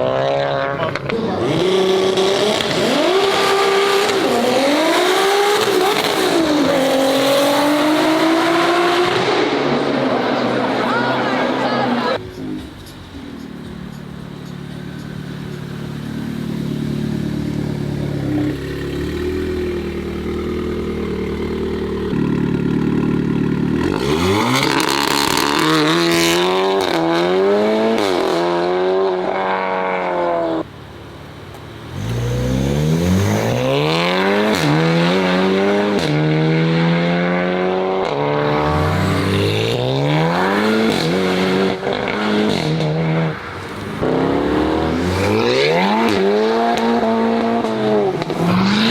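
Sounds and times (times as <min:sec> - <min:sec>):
car accelerating through gears: 0:00.0 - 0:12.8, 0:31.9 - 0:48.9
car engine idling: 0:10.2 - 0:23.9, 0:30.6 - 0:34.6.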